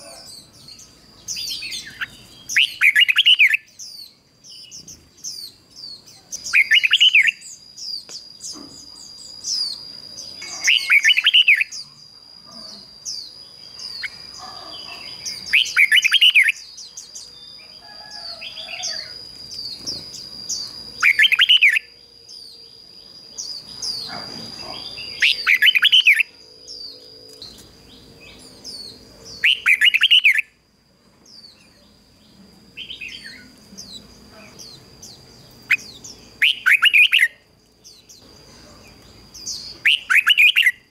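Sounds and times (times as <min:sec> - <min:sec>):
small repeated chirps: 0:00.0 - 0:17.7, 0:18.8 - 0:30.6
bird warbling song: 0:00.0 - 0:30.5, 0:31.3 - 0:40.9
steady high-pitched tone: 0:06.6 - 0:14.4, 0:15.2 - 0:34.4.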